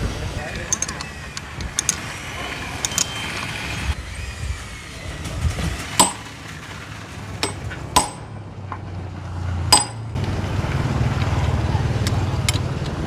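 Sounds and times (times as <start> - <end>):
metal striking metal: 6.0 - 6.4, 7.4 - 8.5, 9.7 - 10.2.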